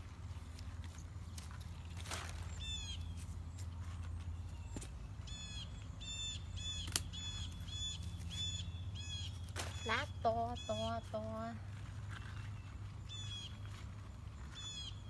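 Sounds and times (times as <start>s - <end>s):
bird calling: 4.5s - 13.6s.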